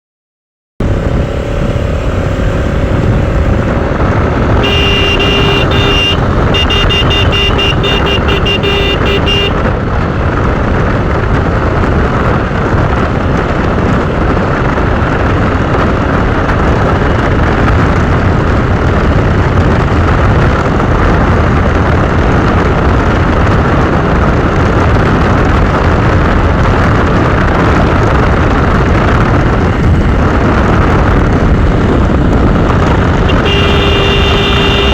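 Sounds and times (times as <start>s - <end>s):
wind and road noise: 0.8s - 34.9s
vehicle horn blast and toots: 1.4s - 9.7s, 33.2s - 34.9s.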